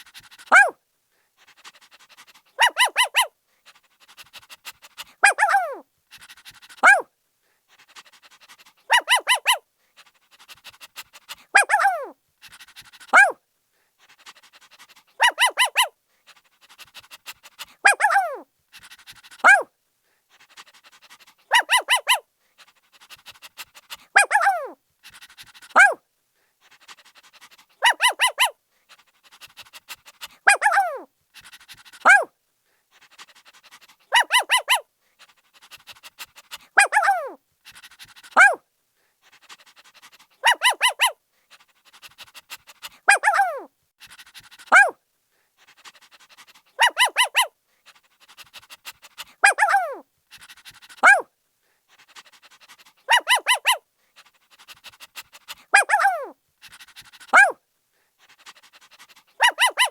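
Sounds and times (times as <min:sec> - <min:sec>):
puppy panting: 0:00.0 - 0:59.9
puppy barking: 0:00.4 - 0:00.8, 0:02.6 - 0:03.3, 0:05.2 - 0:05.8, 0:06.8 - 0:07.0, 0:08.9 - 0:09.6, 0:11.5 - 0:12.1, 0:13.1 - 0:13.4, 0:15.2 - 0:15.9, 0:17.8 - 0:18.4, 0:19.4 - 0:19.7, 0:21.5 - 0:22.2, 0:24.1 - 0:24.8, 0:25.7 - 0:26.0, 0:27.8 - 0:28.6, 0:30.4 - 0:31.1, 0:32.0 - 0:32.3, 0:34.1 - 0:34.8, 0:36.8 - 0:37.4, 0:38.4 - 0:38.6, 0:40.4 - 0:41.2, 0:43.0 - 0:43.7, 0:44.7 - 0:45.0, 0:46.8 - 0:47.5, 0:49.4 - 0:50.0, 0:51.0 - 0:51.3, 0:53.1 - 0:53.8, 0:55.7 - 0:56.4, 0:57.3 - 0:57.6, 0:59.4 - 0:59.9
puppy yelping: 0:00.4 - 0:00.8, 0:02.6 - 0:03.3, 0:05.2 - 0:05.8, 0:06.8 - 0:07.0, 0:08.9 - 0:09.6, 0:11.6 - 0:12.1, 0:13.1 - 0:13.4, 0:15.2 - 0:15.9, 0:17.8 - 0:18.4, 0:19.4 - 0:19.7, 0:21.5 - 0:22.2, 0:24.2 - 0:24.8, 0:25.8 - 0:26.0, 0:27.8 - 0:28.6, 0:30.5 - 0:31.1, 0:32.0 - 0:32.3, 0:34.1 - 0:34.8, 0:36.5 - 0:37.4, 0:38.4 - 0:38.6, 0:40.4 - 0:41.2, 0:43.1 - 0:43.7, 0:44.7 - 0:45.0, 0:46.8 - 0:47.5, 0:49.4 - 0:50.0, 0:51.0 - 0:51.2, 0:53.1 - 0:53.8, 0:55.7 - 0:56.4, 0:57.3 - 0:57.6, 0:59.4 - 0:59.9.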